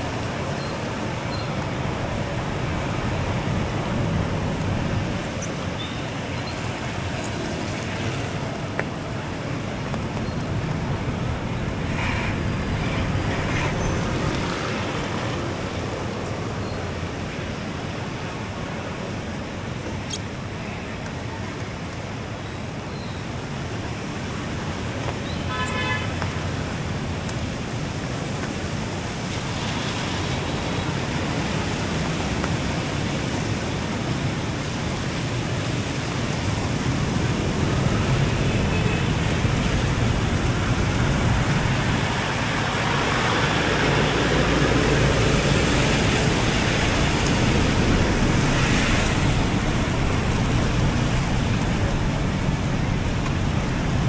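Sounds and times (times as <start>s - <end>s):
road traffic noise: 0.0s - 54.0s.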